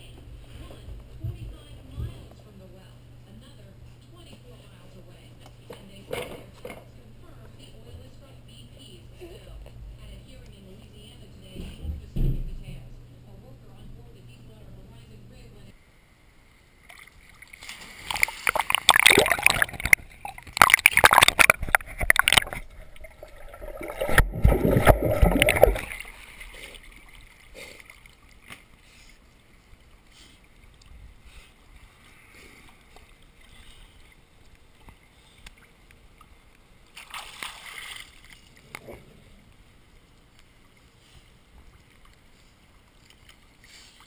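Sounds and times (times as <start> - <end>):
water splashing in a pool: 16.8 - 30.9, 32.7 - 38.8, 40.0 - 44.0.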